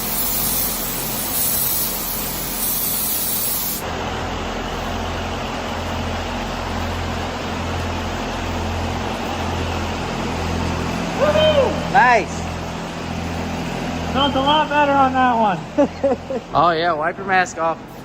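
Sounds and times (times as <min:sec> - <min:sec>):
spray gun hissing: 0:00.0 - 0:03.8.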